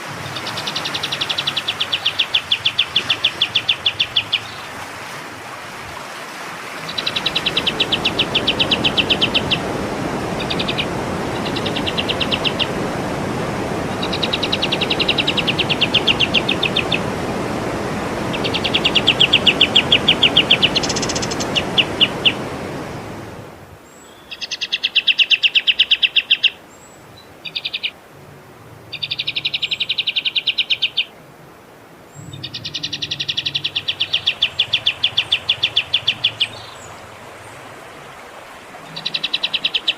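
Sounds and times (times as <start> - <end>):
songbird trilling: 0.2 - 4.7, 6.8 - 9.7, 10.4 - 12.8, 13.9 - 17.1, 18.3 - 22.4, 23.9 - 26.6, 27.2 - 28.0, 28.9 - 31.2, 32.1 - 36.9, 38.9 - 39.9.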